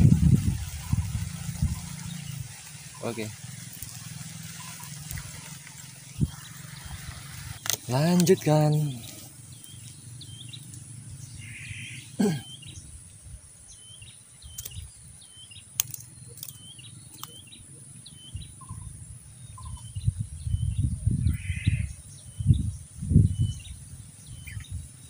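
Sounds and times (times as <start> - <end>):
high insect drone: 0.0 - 13.4
bird chirping: 0.8 - 25.0.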